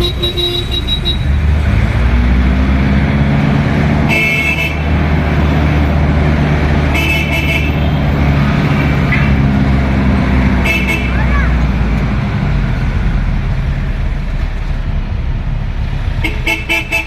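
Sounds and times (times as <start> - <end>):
high-pitched horn toots: 0.0 - 1.4, 4.1 - 4.9, 6.9 - 8.1, 10.6 - 11.6, 16.2 - 17.0
traffic engine hum: 0.0 - 17.0.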